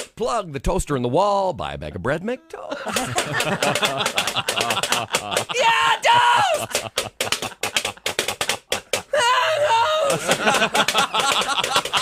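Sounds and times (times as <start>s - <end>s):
sharp clicking hits: 2.9s - 5.6s, 6.6s - 9.1s, 10.1s - 12.0s.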